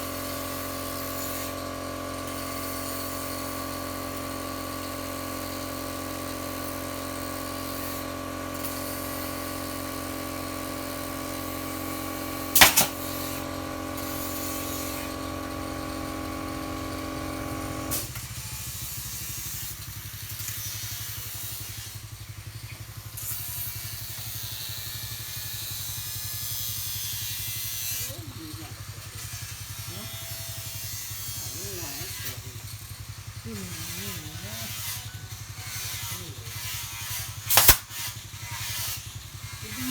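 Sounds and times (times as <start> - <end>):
power tool motor running: 0.0 - 39.9
sharp double knock: 12.6 - 13.0.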